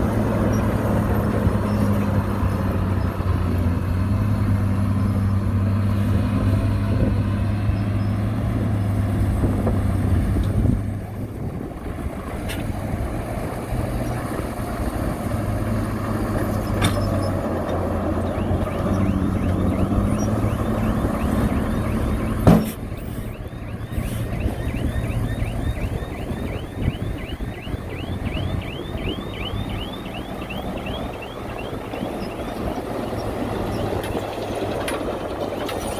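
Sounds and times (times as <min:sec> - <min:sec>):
diesel machinery engine drone: 0:00.0 - 0:35.9
sharp knock: 0:22.4 - 0:22.8.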